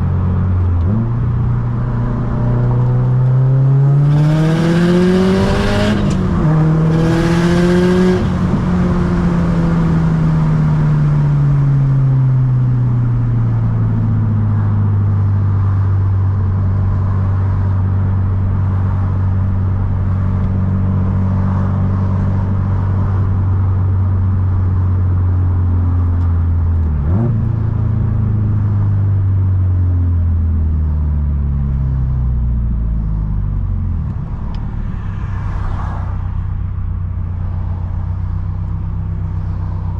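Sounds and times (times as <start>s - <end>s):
turbocharged car engine revving: 0.7s - 10.1s.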